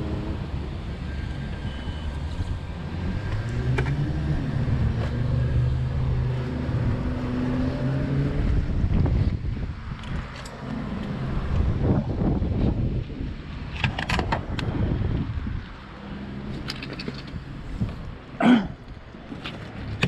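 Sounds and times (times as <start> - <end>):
wind on microphone: 0.0 - 18.2.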